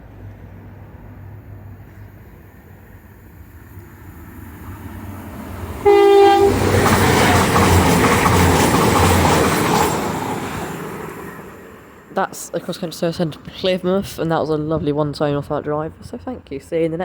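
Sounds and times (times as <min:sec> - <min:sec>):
rail and wheel noise: 0:00.0 - 0:17.0
train rumbling: 0:00.0 - 0:17.0
train horn blast: 0:05.8 - 0:06.9.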